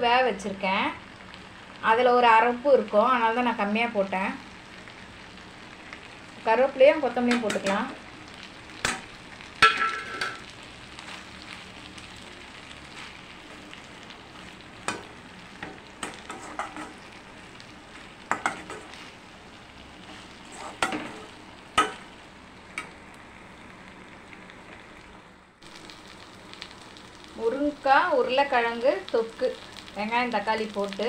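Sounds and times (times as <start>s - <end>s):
food sizzling in oil: 0.0s - 31.0s
spatula scraping a pan: 14.9s - 17.2s, 20.0s - 22.0s.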